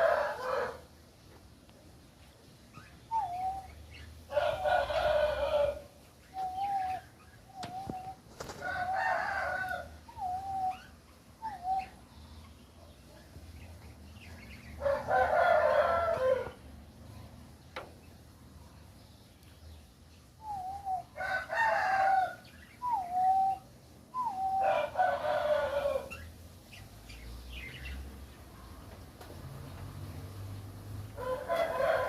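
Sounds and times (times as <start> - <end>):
rooster crowing: 0.0 - 0.9, 4.3 - 5.9, 8.6 - 10.0, 14.8 - 16.6, 21.2 - 22.4, 24.5 - 26.2, 31.2 - 32.0.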